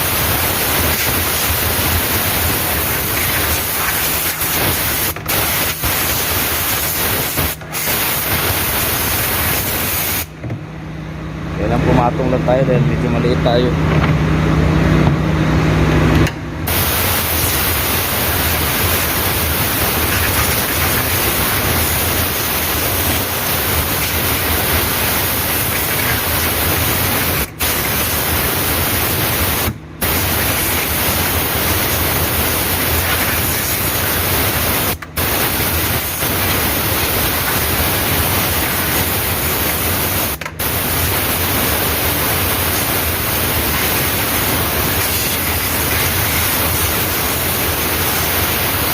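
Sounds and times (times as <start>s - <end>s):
compressed air blow gun hissing: 0.0s - 10.3s, 16.7s - 48.9s.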